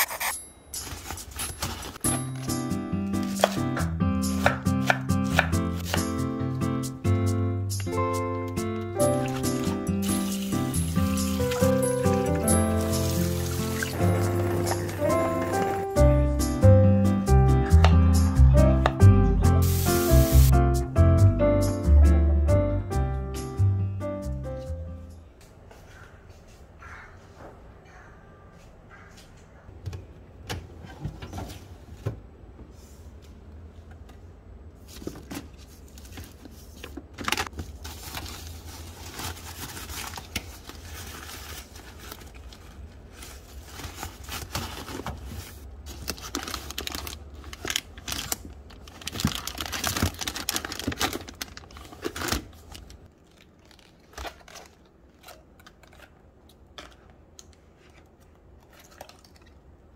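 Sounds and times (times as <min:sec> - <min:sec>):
plastic bags crinkling: 0:37.2 - 0:55.4.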